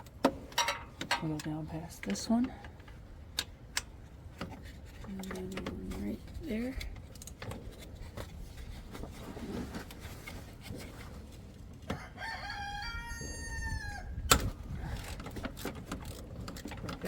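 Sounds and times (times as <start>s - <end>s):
rooster crowing: 11.9s - 14.2s.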